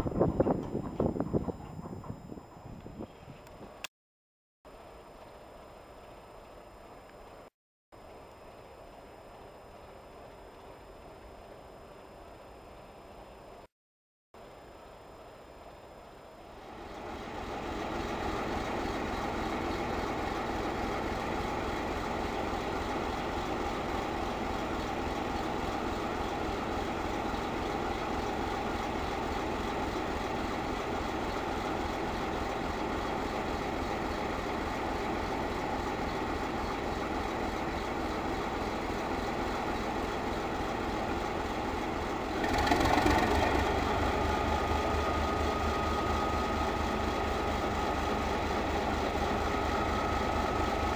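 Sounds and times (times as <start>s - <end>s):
diesel locomotive engine running: 0.0s - 3.9s, 16.4s - 50.9s.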